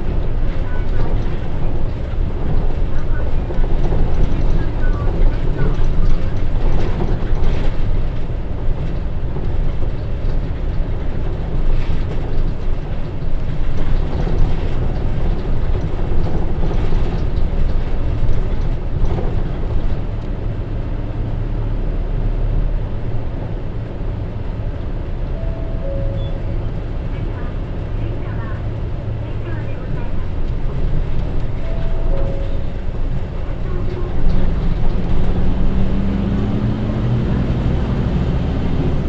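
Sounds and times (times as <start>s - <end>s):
bus diesel engine running: 0.0s - 39.0s.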